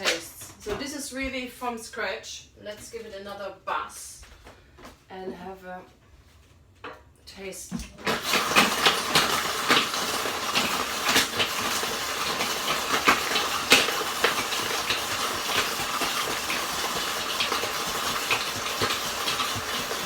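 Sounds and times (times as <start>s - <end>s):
blender whirring: 7.8s - 20.0s
ice knocking against blender jar: 8.0s - 20.0s.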